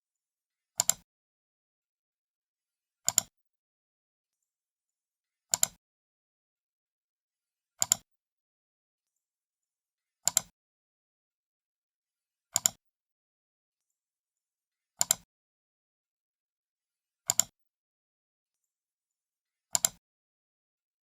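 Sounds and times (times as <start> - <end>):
computer mouse button clicking: 0.8 - 1.0, 3.1 - 3.3, 7.8 - 8.0, 10.3 - 10.5, 12.6 - 12.8, 15.0 - 15.2, 17.3 - 17.5, 19.7 - 20.0.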